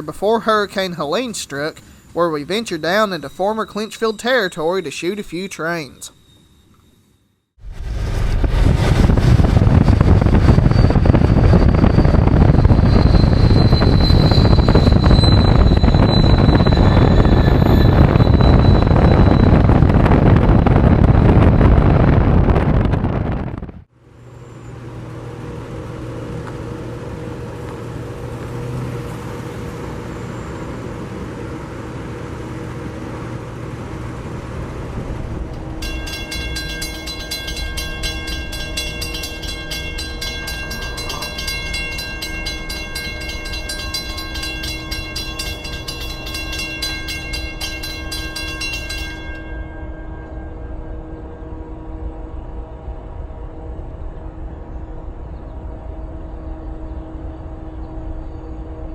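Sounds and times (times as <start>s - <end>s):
high wheel squeal: 0.0s - 7.4s, 9.8s - 21.4s, 27.0s - 32.8s, 35.6s - 51.3s
diesel locomotive drone: 0.0s - 58.9s
freight train rumbling past: 7.6s - 58.9s
train horn: 35.6s - 54.3s.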